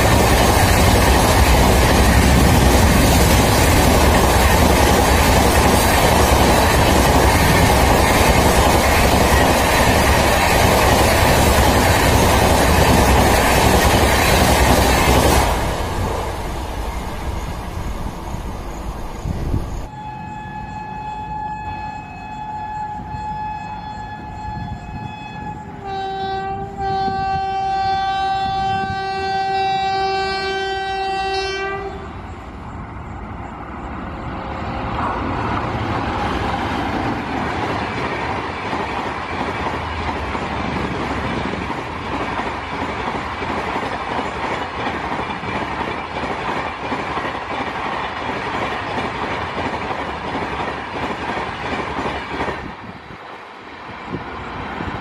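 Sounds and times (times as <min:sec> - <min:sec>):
train wheels rushing on rails: 0:00.0 - 0:19.9, 0:24.2 - 0:55.0
locomotive horn blast: 0:19.9 - 0:32.2.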